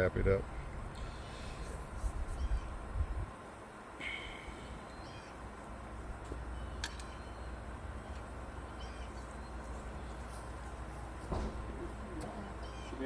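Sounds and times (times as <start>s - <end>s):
steady low hum: 0.0s - 13.0s
short bird calls: 1.0s - 2.9s, 4.0s - 5.5s, 6.5s - 10.4s, 11.6s - 13.0s.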